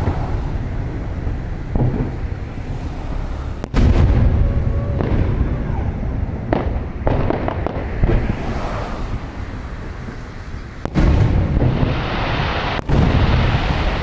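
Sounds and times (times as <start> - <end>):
fireworks booming: 0.0 - 14.0
low rumble: 0.0 - 14.0
sharp bangs: 3.6 - 8.5, 10.8 - 14.0.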